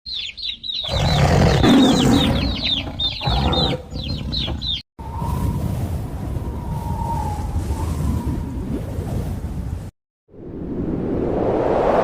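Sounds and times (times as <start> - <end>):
chicks peeping: 0.1 - 0.9, 2.0 - 3.2, 4.0 - 4.8.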